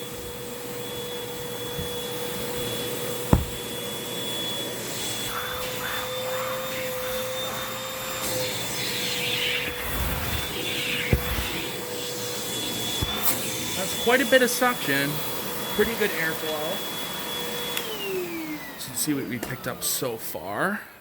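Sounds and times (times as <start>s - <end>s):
hose tool scraping cushions: 0.0s - 3.8s, 9.5s - 12.0s
vacuum cleaner whining: 0.0s - 20.5s
sharp knock: 3.3s - 3.6s.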